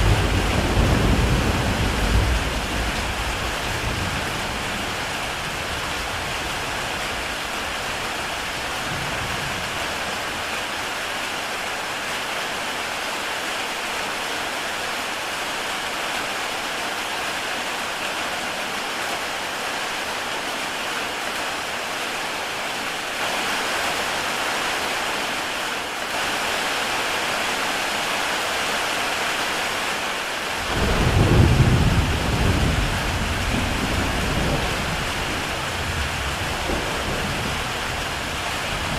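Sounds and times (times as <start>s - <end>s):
thunder rumbling: 0.0s - 7.0s, 30.6s - 38.9s
heavy rain on a tile roof: 0.0s - 38.9s.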